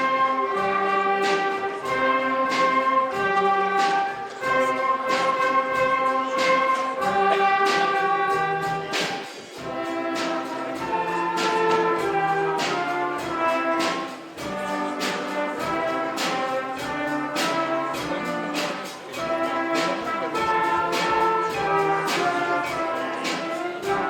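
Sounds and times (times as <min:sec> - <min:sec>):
brass-led orchestra playing: 0:00.0 - 0:24.0.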